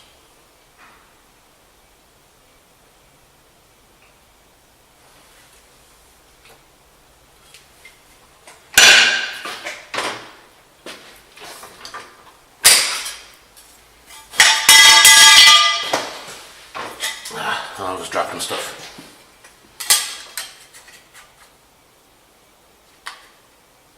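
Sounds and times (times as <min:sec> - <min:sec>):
metal objects clattering: 0:14.1 - 0:17.3.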